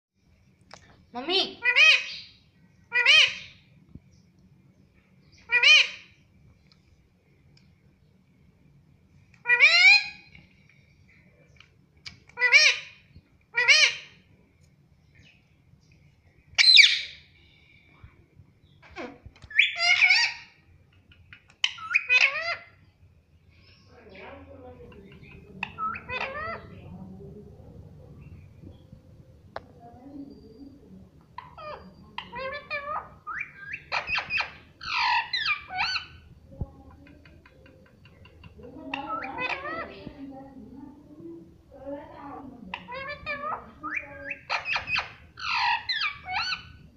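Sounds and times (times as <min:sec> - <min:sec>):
parakeet squawking and warbling: 0:01.3 - 0:03.7, 0:05.4 - 0:06.2, 0:09.4 - 0:10.3, 0:12.3 - 0:14.3, 0:16.6 - 0:17.3, 0:18.9 - 0:20.6, 0:21.4 - 0:22.8, 0:25.0 - 0:26.9, 0:31.3 - 0:36.3, 0:38.5 - 0:40.3, 0:42.6 - 0:46.9.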